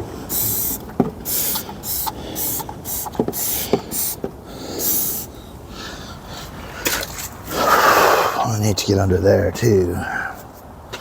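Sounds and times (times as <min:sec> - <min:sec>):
pressure washer spraying: 0:00.0 - 0:05.3.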